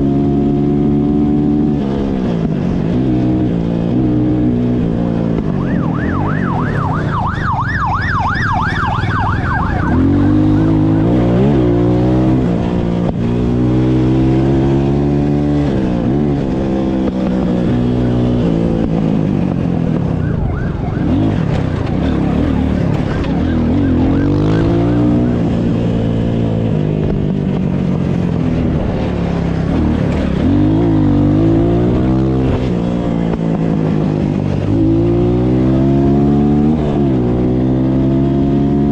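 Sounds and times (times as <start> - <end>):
siren yelping: 5.4 - 11.5, 20.0 - 25.5
engine revving: 9.4 - 19.7, 20.7 - 38.9.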